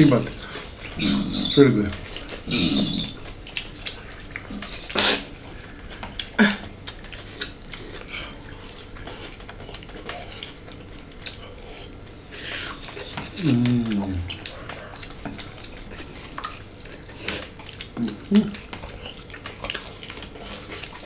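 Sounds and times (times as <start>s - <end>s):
sharp mouth noises: 0.1s - 5.4s
wet chewing and lip-smacking: 0.1s - 21.0s.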